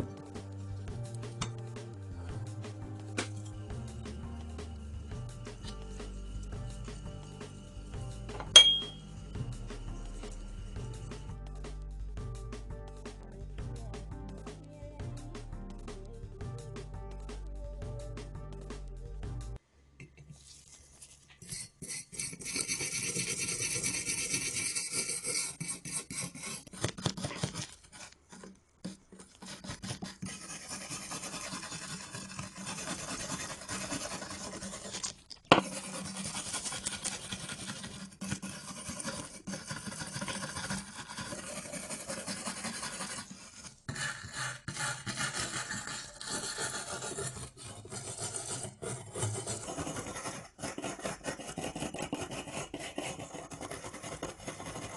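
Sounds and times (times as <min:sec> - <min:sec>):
rasping abrasive strokes on metal: 0:21.5 - 0:26.7, 0:29.5 - 0:54.9.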